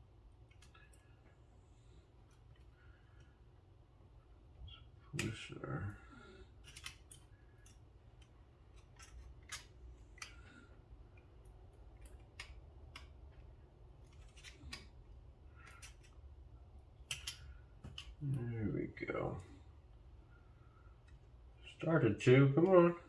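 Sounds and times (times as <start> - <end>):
small metal parts clicking: 6.5 - 16.3, 17.0 - 18.2.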